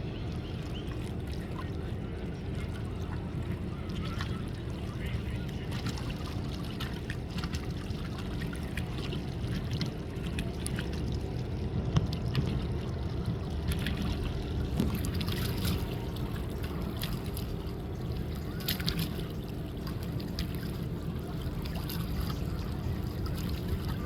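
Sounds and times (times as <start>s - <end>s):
steady low rumble: 0.0s - 24.0s
water lapping and splashing: 0.0s - 24.0s.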